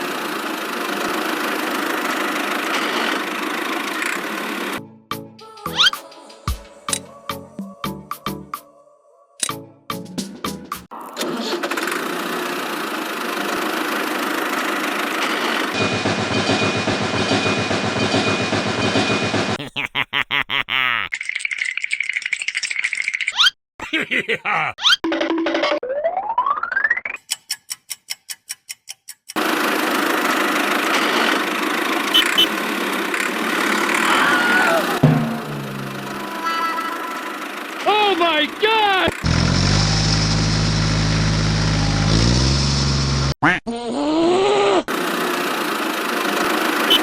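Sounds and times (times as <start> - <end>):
small machine motor running: 0.0 - 4.8, 11.6 - 15.8, 29.4 - 34.1, 44.9 - 47.0.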